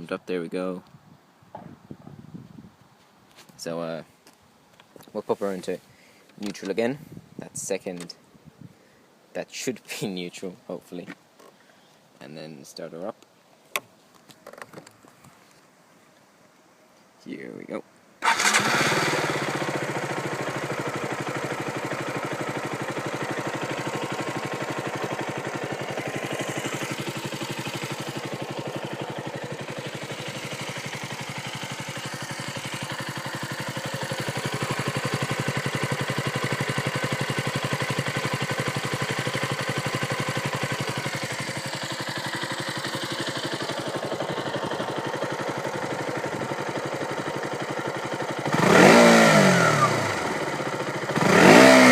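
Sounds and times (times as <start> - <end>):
motorcycle engine starting and idling: 18.2 - 51.9.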